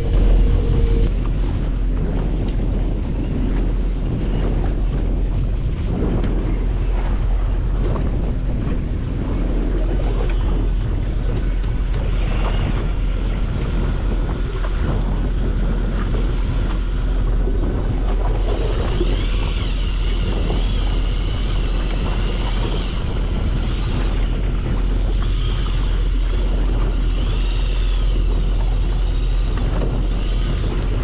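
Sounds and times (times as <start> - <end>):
high wavering whine: 0.0 - 2.4, 9.3 - 31.0
steady low rumble: 0.0 - 31.0
wind buffeting microphone: 0.0 - 31.0.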